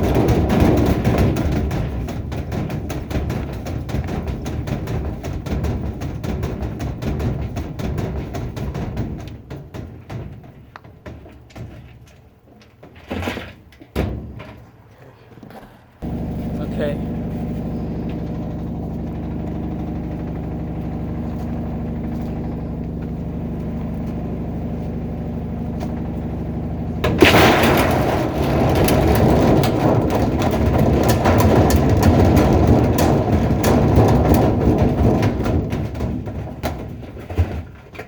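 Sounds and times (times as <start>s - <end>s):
washing machine clattering and banging: 0.0s - 14.6s, 16.0s - 38.0s
washing machine motor hum: 16.0s - 27.2s.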